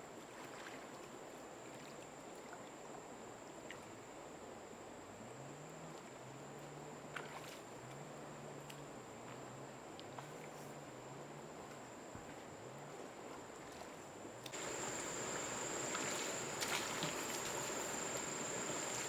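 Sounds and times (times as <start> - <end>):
faint moving water: 0.0 - 19.0
low repeating hum: 14.6 - 19.0
steady high-pitched tone: 14.6 - 19.0.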